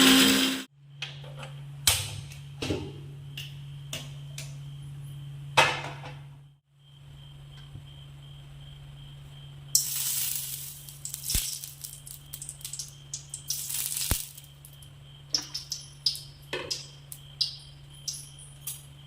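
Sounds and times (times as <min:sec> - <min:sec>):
steady low hum: 0:00.6 - 0:19.0
food sizzling: 0:09.8 - 0:14.8.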